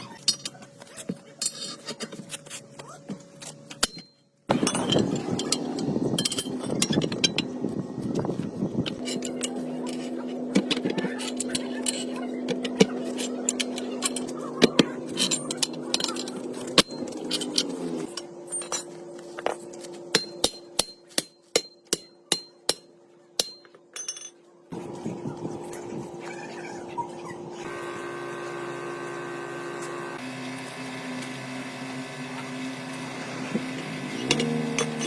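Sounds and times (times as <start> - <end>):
hammer striking metal: 20.1 - 24.3.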